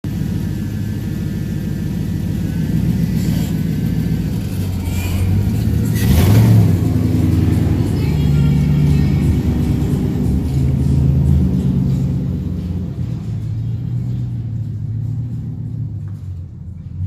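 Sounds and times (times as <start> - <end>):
truck engine running and revving: 0.0 - 17.0.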